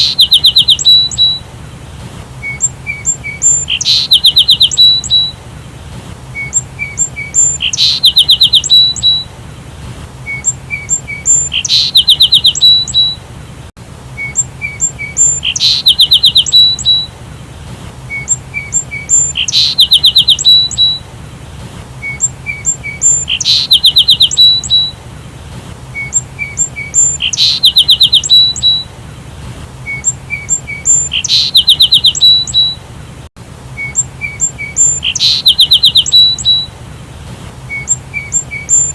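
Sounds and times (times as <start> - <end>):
sparrow chirping: 0.0 - 1.4, 2.4 - 5.4, 6.4 - 9.3, 10.2 - 13.2, 14.2 - 17.1, 18.1 - 21.0, 22.0 - 25.0, 26.0 - 28.9, 29.9 - 32.8, 33.8 - 36.7, 37.7 - 38.9.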